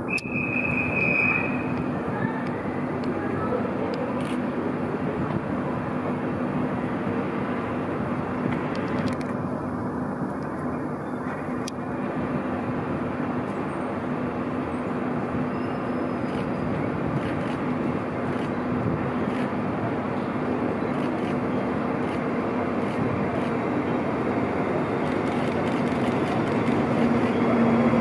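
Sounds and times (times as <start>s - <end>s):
rumble of trains: 0.0s - 28.0s
constant low hum: 16.2s - 28.0s.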